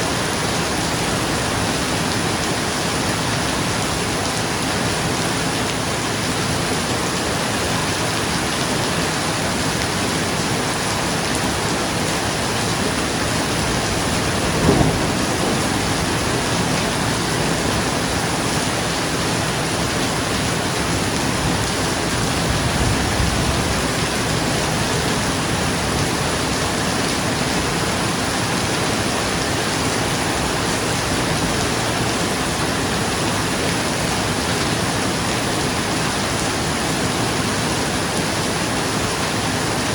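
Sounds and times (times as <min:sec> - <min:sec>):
rain falling on a roof: 0:00.0 - 0:39.9
low thunder rumble: 0:12.3 - 0:27.2
thunder crack: 0:13.1 - 0:18.6.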